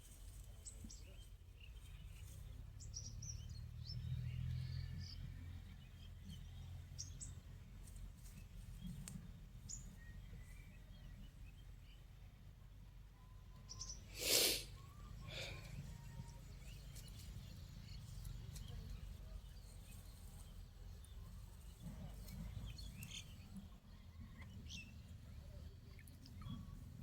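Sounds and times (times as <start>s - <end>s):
faint bird chirps: 8.3s - 27.0s.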